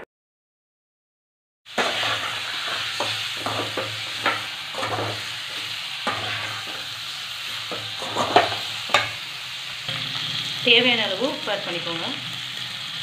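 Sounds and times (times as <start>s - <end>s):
spatula scraping metal pan: 1.7s - 9.2s
chicken sizzling in hot oil: 1.7s - 13.0s.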